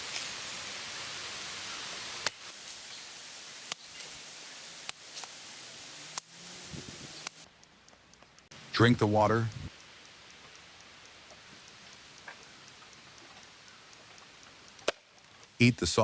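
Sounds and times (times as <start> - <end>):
steady hiss: 0.0 - 16.0
sharp clicks: 7.2 - 16.0.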